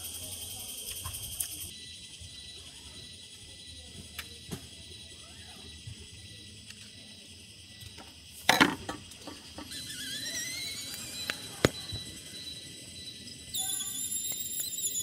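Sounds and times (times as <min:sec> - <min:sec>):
rising squeaky whistle: 0:09.3 - 0:15.0.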